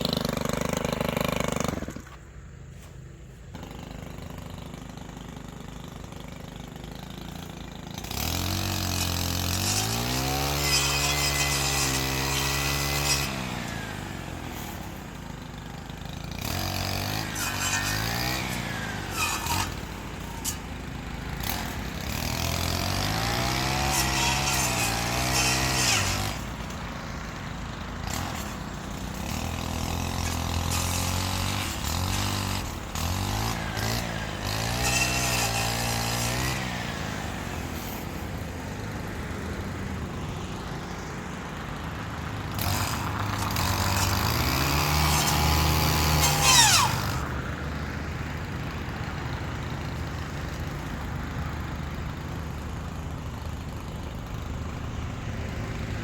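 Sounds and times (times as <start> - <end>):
brushcutter engine revving: 0.0 - 2.9, 3.5 - 40.2, 40.8 - 56.0.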